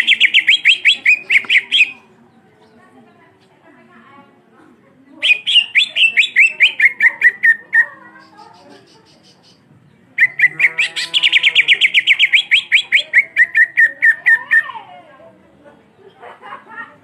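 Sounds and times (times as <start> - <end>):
bird singing rapid notes: 0.0 - 2.1, 5.2 - 9.6, 10.2 - 14.6.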